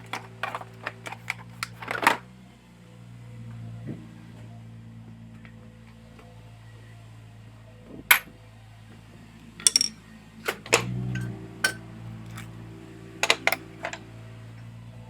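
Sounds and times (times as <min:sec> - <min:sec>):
metal parts clinking: 0:00.0 - 0:02.2, 0:09.6 - 0:12.5, 0:13.2 - 0:14.0.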